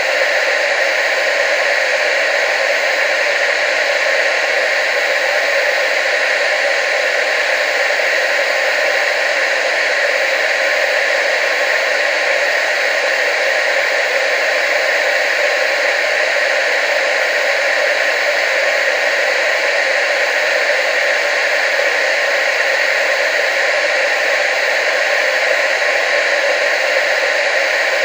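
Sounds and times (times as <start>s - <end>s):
tv static hiss: 0.0s - 28.0s.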